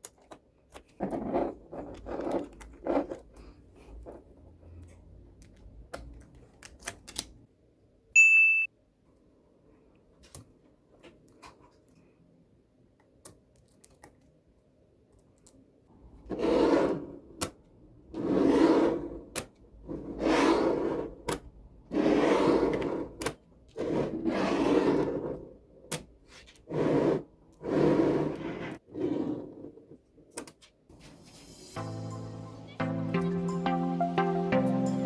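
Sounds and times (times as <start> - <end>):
rubbing scrapes: 16.3 - 17.2, 18.2 - 21.2, 21.9 - 25.6, 26.3 - 30.0.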